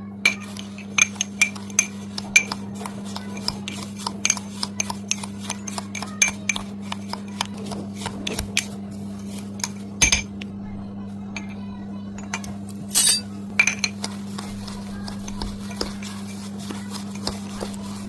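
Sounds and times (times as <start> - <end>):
spoon clinking against bowl: 0.3 - 2.6, 12.2 - 14.1.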